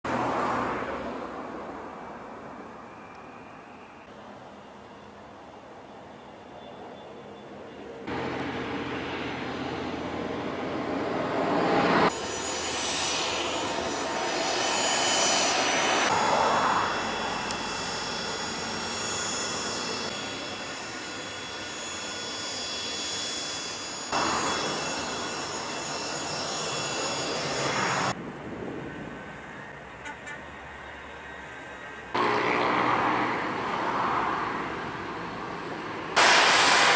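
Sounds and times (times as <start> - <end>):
jet engines roaring and whining: 7.8 - 36.9.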